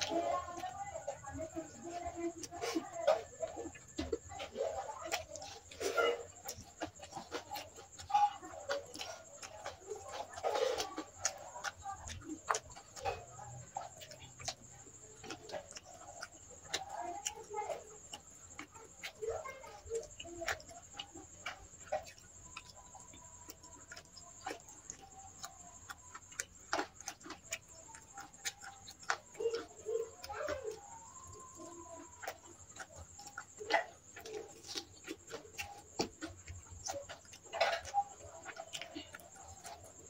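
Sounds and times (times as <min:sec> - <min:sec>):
wet eating clicks and smacks: 0:00.0 - 0:40.0.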